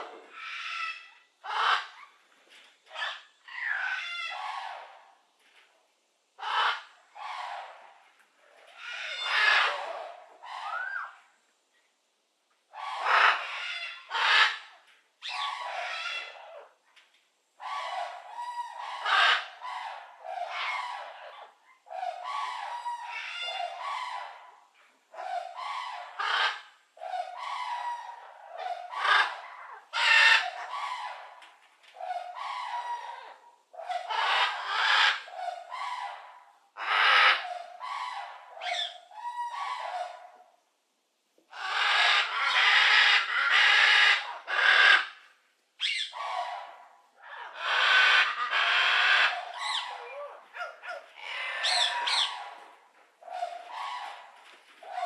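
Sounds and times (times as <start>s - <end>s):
birds calling: 17.6s - 40.4s, 41.5s - 55.0s.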